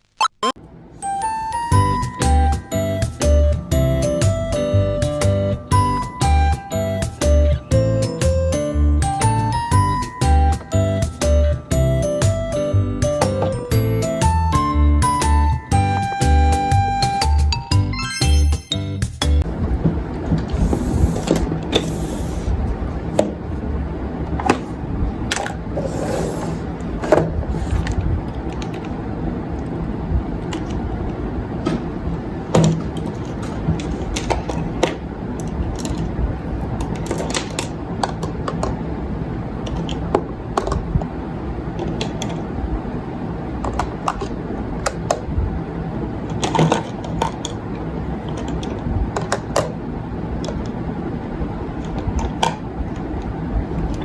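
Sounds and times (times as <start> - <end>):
steady low rumble: 19.4 - 21.7, 22.4 - 25.8, 26.6 - 36.9, 40.3 - 46.3.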